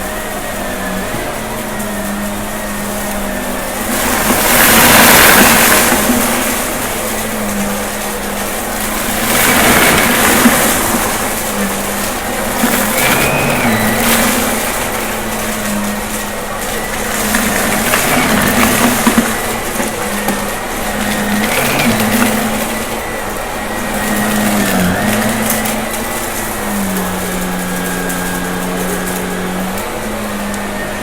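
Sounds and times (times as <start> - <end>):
debris crackling being sucked up: 0.0 - 31.0
vacuum cleaner running: 0.0 - 31.0.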